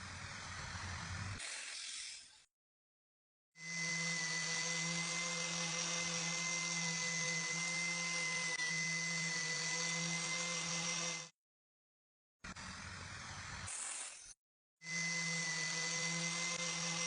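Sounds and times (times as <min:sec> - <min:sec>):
power tool motor whining: 0:03.6 - 0:11.3, 0:14.8 - 0:17.0.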